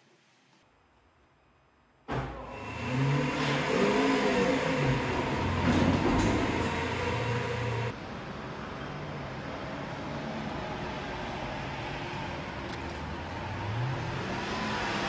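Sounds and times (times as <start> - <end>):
car engine revving: 2.5 - 7.9.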